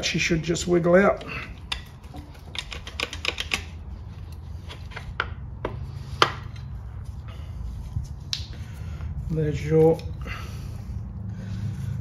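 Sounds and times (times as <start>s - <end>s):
metal clicks and knocks: 1.6s - 3.8s.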